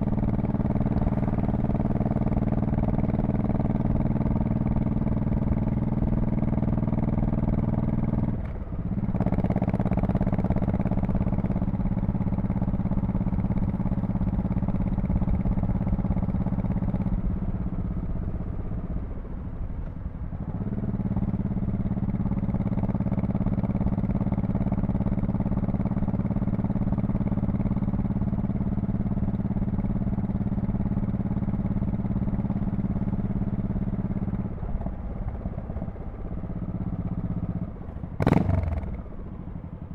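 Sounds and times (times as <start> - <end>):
motorcycle exhaust cruising: 0.0 - 39.9.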